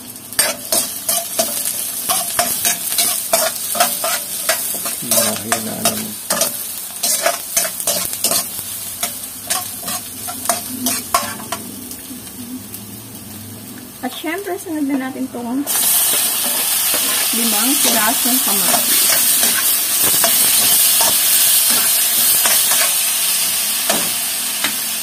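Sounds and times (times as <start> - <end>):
onions sizzling in hot oil: 0.0 - 25.0
metal ladle scraping wok: 0.4 - 11.7, 15.7 - 23.0.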